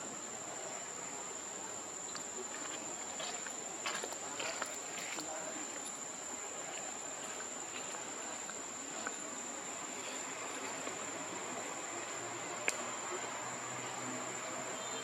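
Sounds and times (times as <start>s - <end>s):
background hiss: 0.0s - 15.0s
insects chirring: 0.0s - 15.0s.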